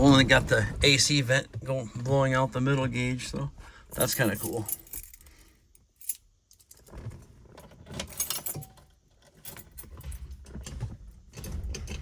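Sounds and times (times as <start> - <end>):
keys jangling: 3.9 - 5.3, 8.0 - 10.8.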